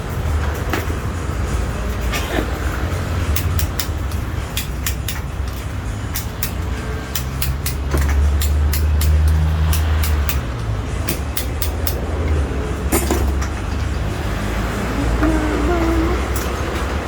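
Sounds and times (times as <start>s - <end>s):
sharp ticks: 8.4s - 10.5s.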